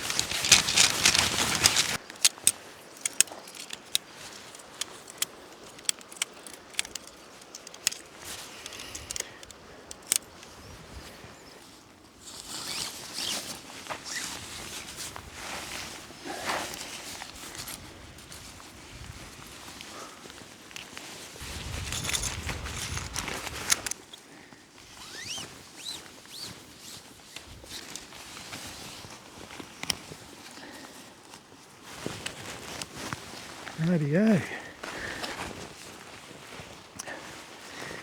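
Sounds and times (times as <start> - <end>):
tarp rustling: 0.0 - 5.7, 20.4 - 24.1
camping gear clicking and clinking: 0.0 - 38.0.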